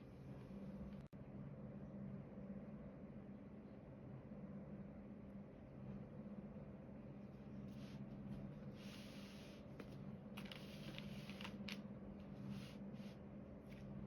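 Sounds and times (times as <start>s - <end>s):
steady low hum: 0.0s - 14.0s
rustling and scraping: 7.6s - 14.0s.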